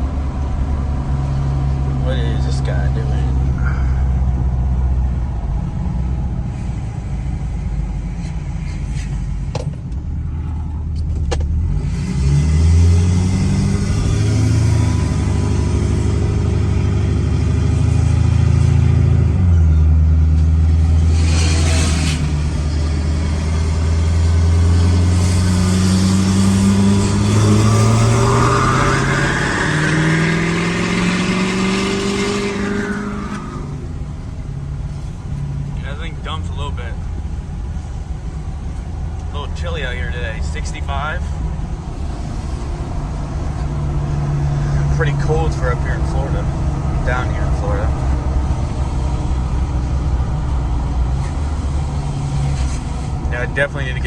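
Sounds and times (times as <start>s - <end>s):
pickup truck engine revving: 11.6s - 34.8s.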